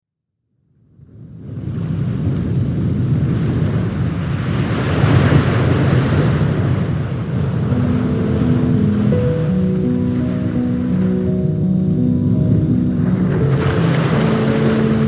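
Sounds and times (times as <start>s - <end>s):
wind rumbling on microphone: 0.8s - 15.0s
sea waves washing in: 1.4s - 15.0s
faint music with held notes: 7.6s - 15.0s.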